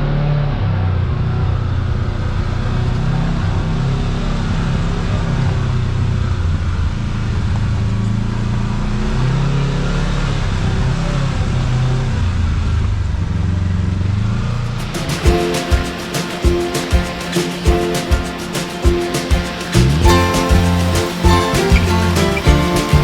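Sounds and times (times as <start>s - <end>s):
tyre and drivetrain noise: 10.1s - 23.0s.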